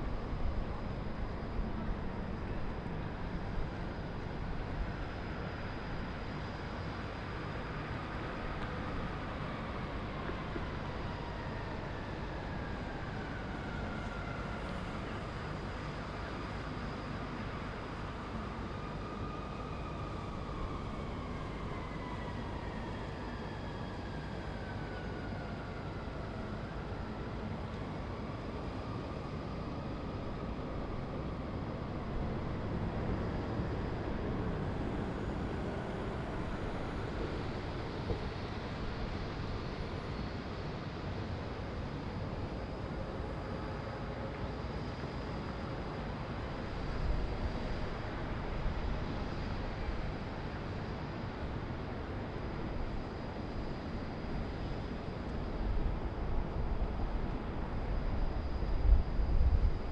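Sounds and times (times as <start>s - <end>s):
city traffic hum: 0.0s - 59.9s
passing vehicle whine: 28.2s - 41.4s.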